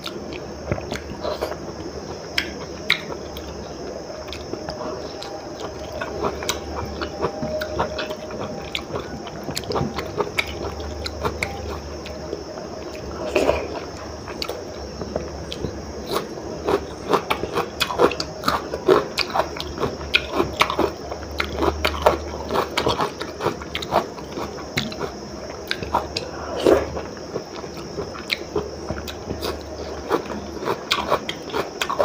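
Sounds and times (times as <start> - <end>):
chewing and lip smacking: 0.0 - 32.0.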